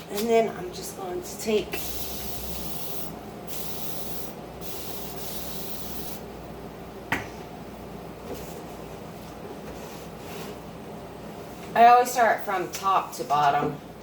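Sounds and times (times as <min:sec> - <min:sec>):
cleaning spray hissing: 0:01.7 - 0:06.2.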